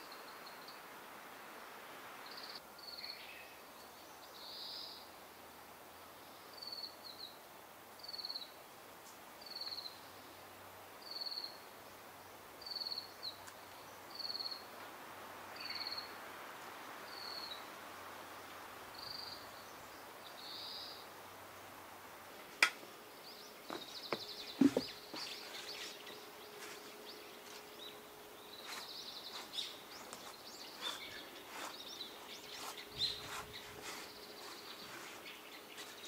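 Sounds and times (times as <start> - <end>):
faint background hiss: 0.0 - 36.0
bird calling: 23.5 - 36.0.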